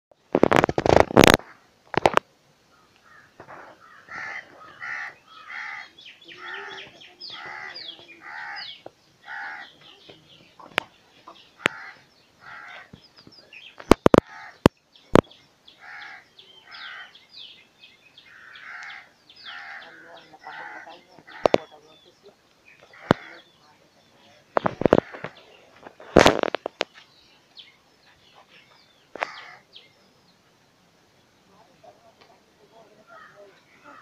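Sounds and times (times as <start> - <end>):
birds harsh calls: 0.4 - 34.0
sharp clicks: 13.8 - 15.3.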